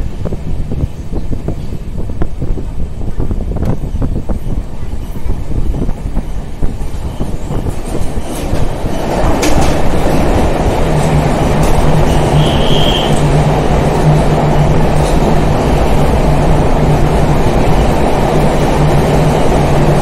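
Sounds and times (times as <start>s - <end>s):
train running on rails: 0.0s - 20.0s.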